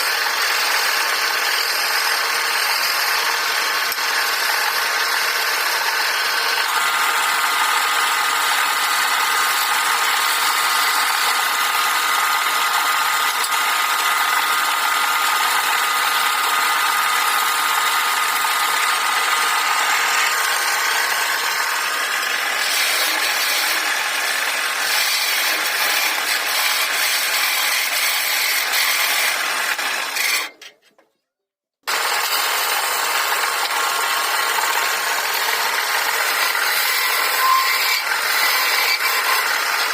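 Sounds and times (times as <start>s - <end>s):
wood lathe motor whine: 0.0s - 30.5s, 31.9s - 39.9s
tool scraping spinning wood: 0.0s - 31.0s, 31.9s - 39.9s.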